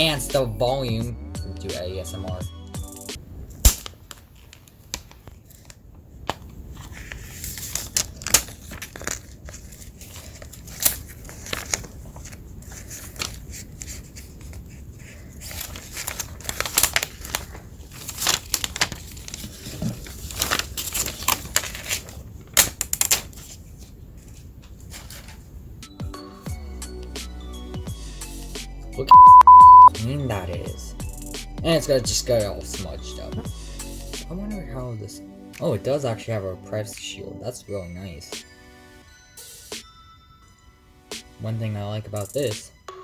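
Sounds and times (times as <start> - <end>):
plastic packaging crinkling: 3.7 - 25.4.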